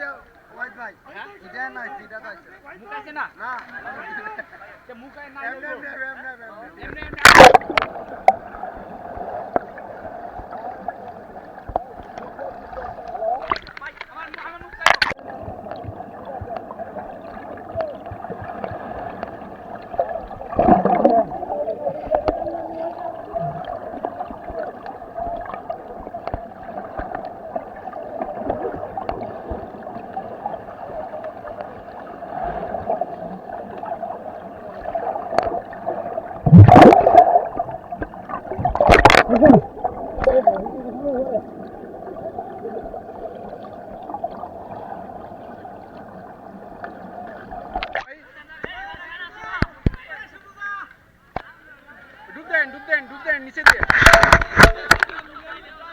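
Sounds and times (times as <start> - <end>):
water gurgling and sloshing: 6.8 - 48.1
loud water splash: 7.1 - 8.0, 34.8 - 40.8.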